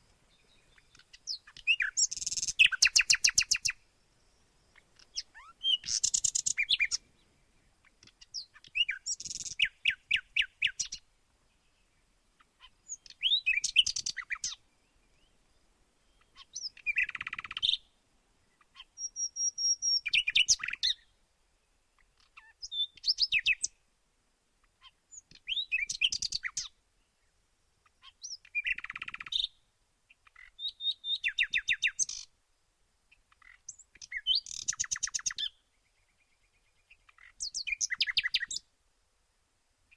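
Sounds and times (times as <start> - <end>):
songbird trilling: 0.3 - 3.8, 4.7 - 11.0, 12.5 - 15.4, 16.0 - 17.9, 18.5 - 21.1, 22.0 - 23.8, 24.8 - 26.8, 27.8 - 32.3, 33.1 - 38.6.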